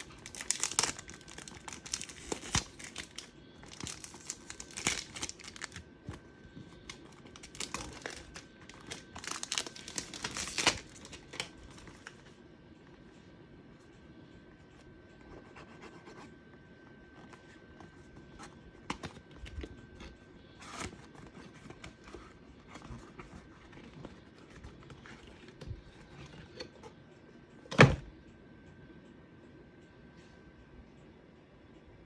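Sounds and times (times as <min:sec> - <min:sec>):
box and bottle clicks and rustles: 0:00.0 - 0:12.2.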